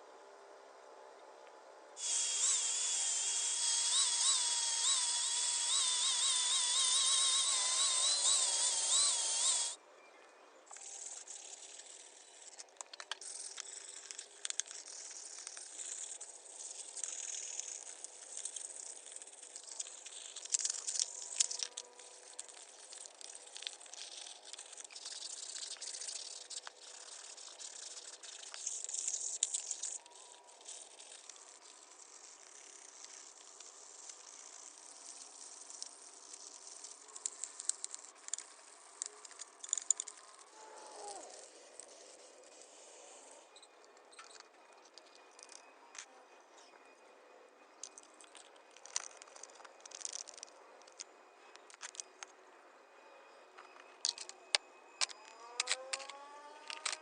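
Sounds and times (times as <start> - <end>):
scratchy rubbing: 2.0 - 9.8, 10.7 - 43.3
small power tool whining: 2.0 - 9.8, 55.0 - 57.0.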